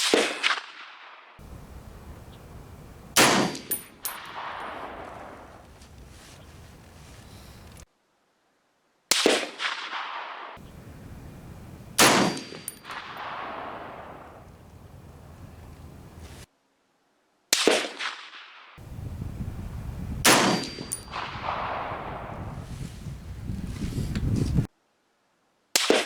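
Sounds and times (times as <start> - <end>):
rifle shots echoing: 1.4 - 7.6, 9.1 - 16.4, 20.2 - 22.4.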